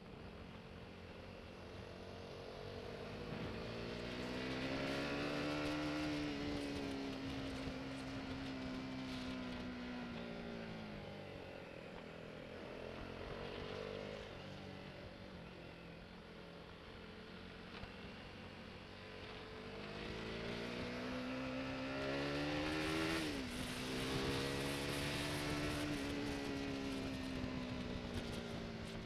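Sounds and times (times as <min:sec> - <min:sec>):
road noise: 0:00.0 - 0:29.0
motorcycle engine revving: 0:02.3 - 0:11.4, 0:19.1 - 0:29.0.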